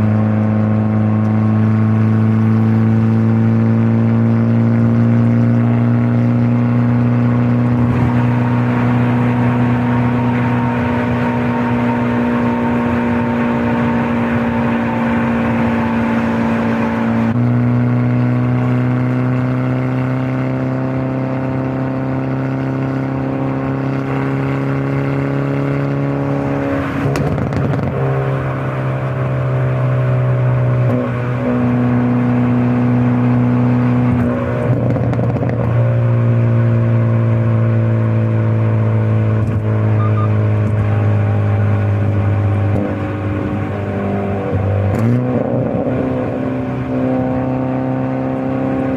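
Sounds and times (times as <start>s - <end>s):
car engine and exhaust running: 0.0s - 48.9s.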